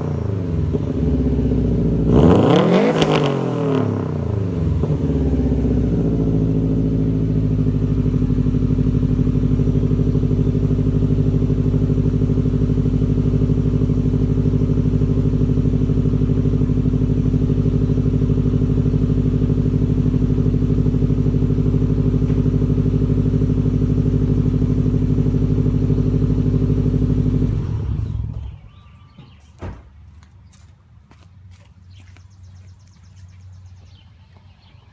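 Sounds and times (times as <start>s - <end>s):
car engine idling: 3.9s - 29.2s.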